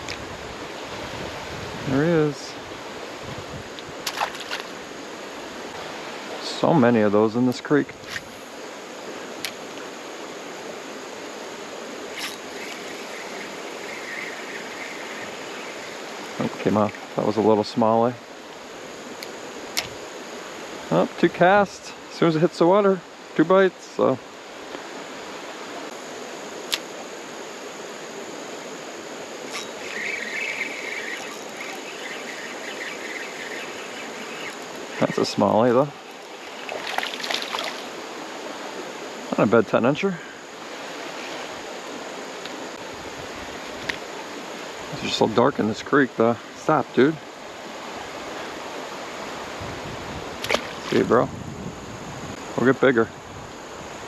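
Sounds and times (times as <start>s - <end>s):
creek water flowing: 0.0s - 21.2s, 24.3s - 45.3s
buzzing whir: 7.8s - 21.9s, 24.3s - 39.4s, 40.4s - 45.2s
creek water over rocks: 11.6s - 17.9s, 29.0s - 42.8s
sharp click: 26.7s - 26.9s.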